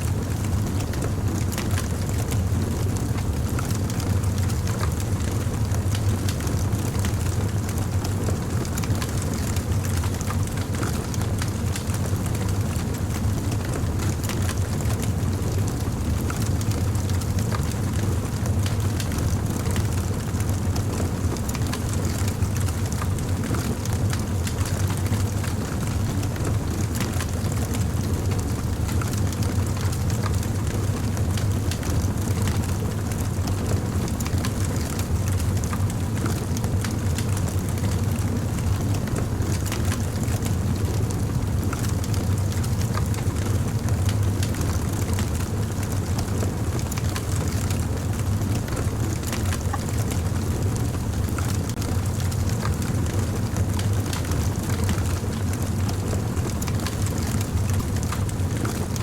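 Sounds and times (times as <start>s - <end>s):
fire crackling: 20.0s - 54.3s.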